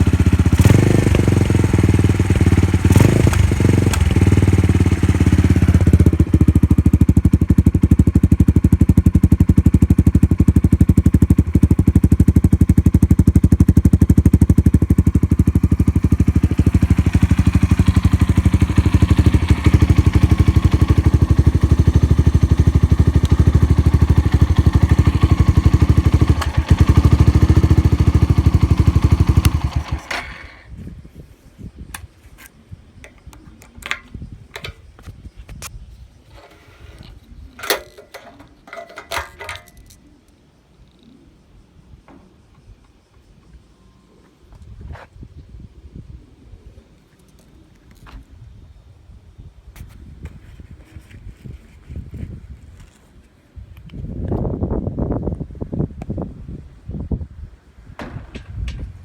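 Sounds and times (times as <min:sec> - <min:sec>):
motorcycle engine idling: 0:00.0 - 0:30.7.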